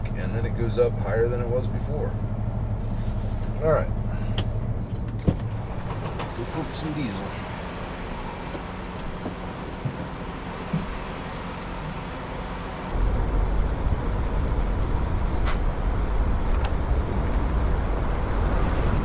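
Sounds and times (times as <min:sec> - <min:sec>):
diesel truck engine idling: 0:00.0 - 0:13.0
loud low rumble: 0:00.0 - 0:19.0.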